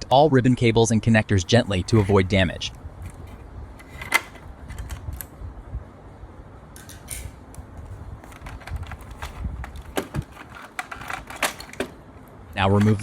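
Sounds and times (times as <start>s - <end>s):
plastic parts clicking: 1.7s - 2.2s, 3.0s - 5.3s, 6.8s - 12.0s.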